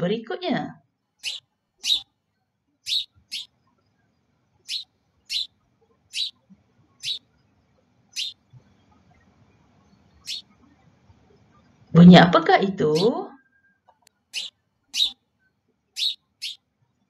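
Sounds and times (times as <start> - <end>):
bird chirping: 1.2 - 2.1, 2.8 - 4.0, 4.6 - 10.8, 12.8 - 13.2, 14.3 - 15.2, 15.9 - 16.6.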